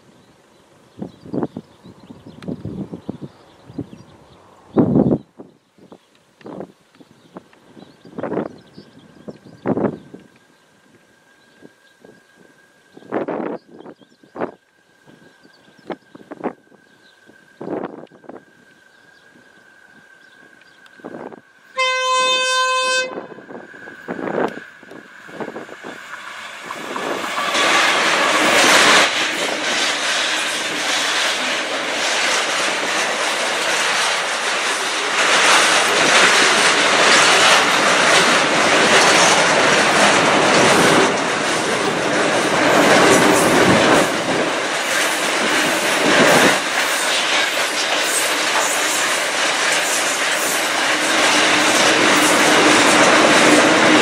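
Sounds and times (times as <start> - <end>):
diesel locomotives passing: 6.2 - 54.0
wagons running over rails: 25.8 - 54.0.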